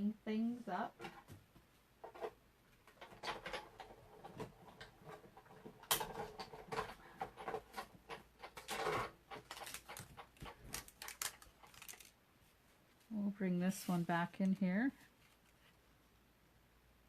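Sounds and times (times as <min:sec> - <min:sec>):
paper rustling and tapping: 0:04.4 - 0:12.1.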